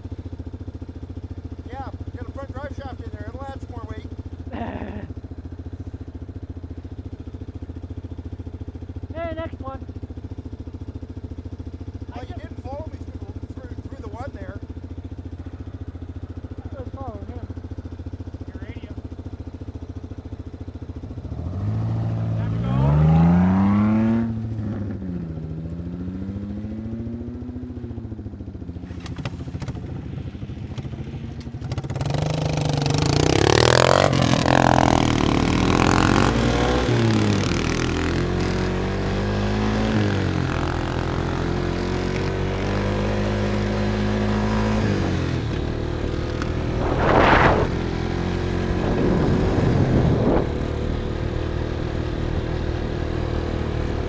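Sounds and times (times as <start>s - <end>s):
quad engine running: 0.0s - 54.0s
sharp burst: 46.6s - 50.8s.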